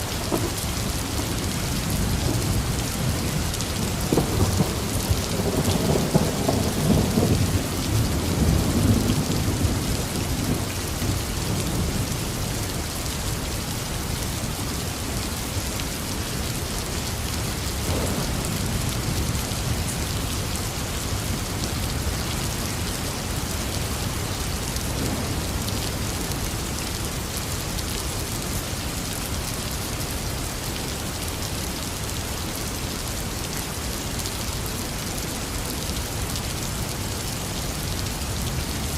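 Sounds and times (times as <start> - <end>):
heavy rain: 0.0 - 38.9
thunder rumbling: 0.1 - 10.7, 17.8 - 19.9.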